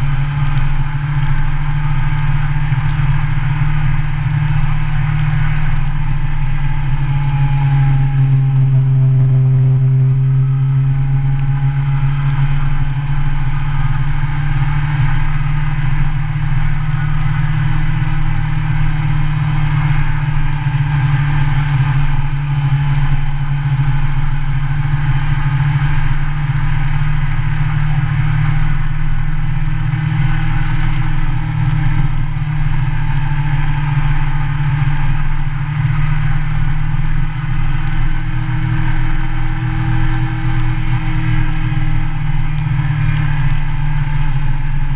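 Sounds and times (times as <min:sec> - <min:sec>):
motorcycle engine running: 0:00.0 - 0:44.9
wind and road noise: 0:00.0 - 0:44.9.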